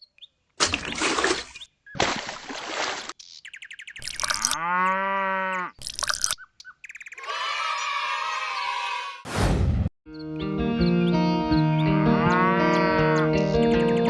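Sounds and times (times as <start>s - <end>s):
cow mooing: 4.4s - 5.8s, 11.9s - 13.5s.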